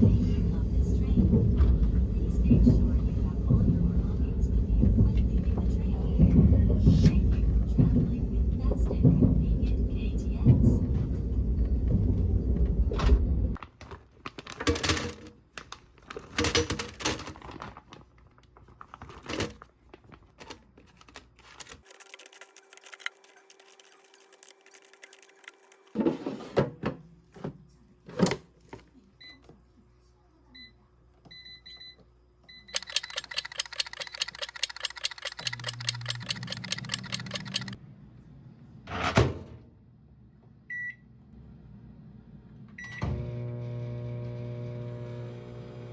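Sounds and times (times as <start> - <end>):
electronic appliance beeps: 30.6 - 37.8, 40.7 - 41.0
rapid even ticking: 32.7 - 37.8.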